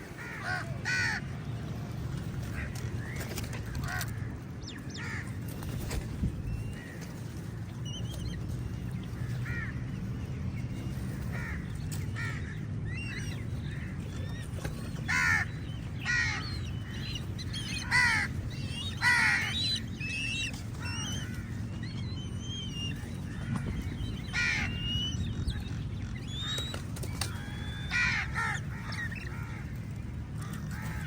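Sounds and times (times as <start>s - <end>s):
crows cawing: 0.1s - 1.4s, 3.7s - 5.4s, 9.2s - 9.9s, 11.3s - 12.6s, 15.0s - 21.7s, 23.2s - 25.0s, 27.2s - 31.0s.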